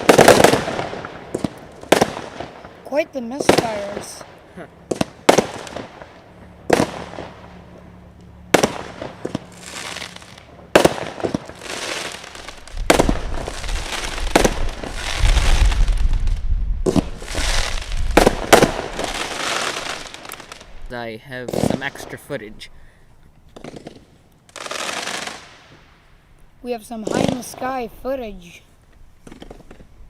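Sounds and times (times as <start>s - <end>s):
firework shells bursting: 0.0s - 2.7s, 8.5s - 20.8s
firework crackling: 0.0s - 7.6s, 8.5s - 22.7s, 23.6s - 26.0s, 26.6s - 28.5s
low rumble: 12.5s - 19.2s.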